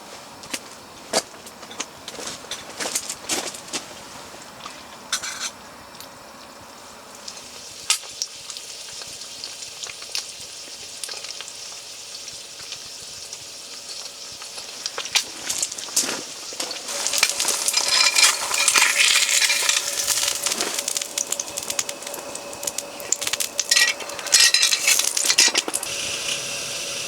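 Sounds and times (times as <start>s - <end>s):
food sizzling in a frying pan: 6.8s - 27.0s.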